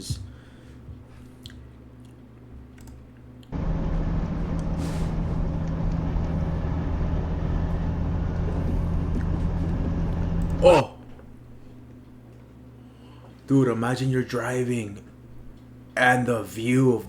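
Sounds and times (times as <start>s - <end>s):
road noise: 3.5s - 10.7s
truck engine drone: 3.5s - 10.9s.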